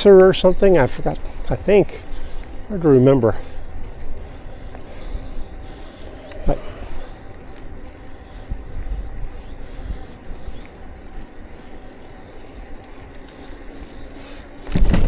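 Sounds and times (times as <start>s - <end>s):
bicycle rolling noise: 0.0s - 15.0s
faint ticks: 3.3s - 14.7s
wind on microphone: 3.8s - 11.2s.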